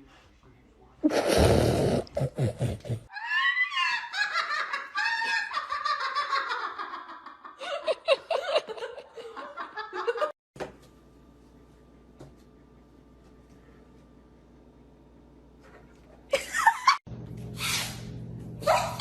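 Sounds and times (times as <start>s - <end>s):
person laughing hard: 1.1s - 10.4s.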